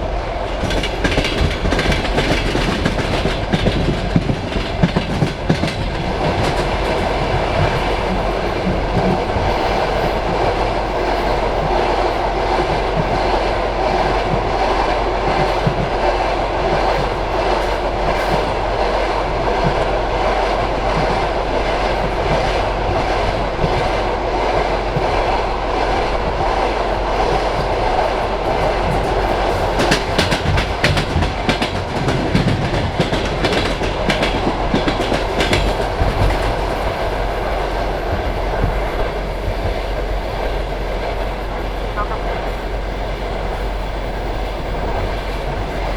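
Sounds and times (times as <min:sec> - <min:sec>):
train wheels rumbling on rails: 0:00.0 - 0:45.9
wheels clicking over rail joints: 0:00.6 - 0:10.2, 0:27.2 - 0:40.5.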